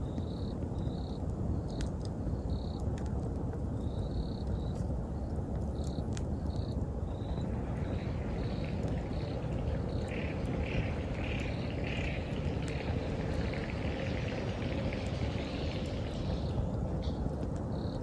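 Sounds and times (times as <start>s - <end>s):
bonfire burning: 0.0s - 18.0s
insects chirping: 5.7s - 18.0s.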